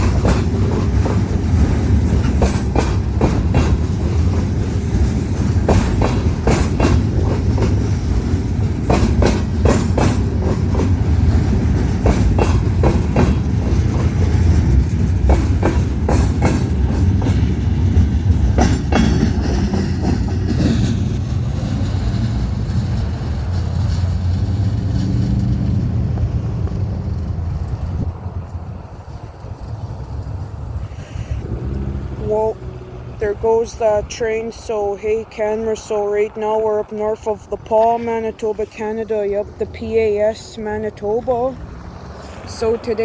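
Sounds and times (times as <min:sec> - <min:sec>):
train wheels clacking: 0:00.0 - 0:27.9
train rumble: 0:00.0 - 0:43.0.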